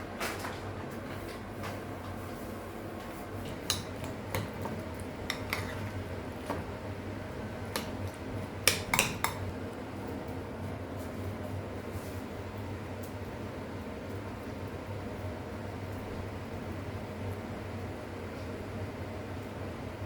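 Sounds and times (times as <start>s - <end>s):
dishes and utensils clinking: 3.5s - 6.0s, 7.8s - 9.5s.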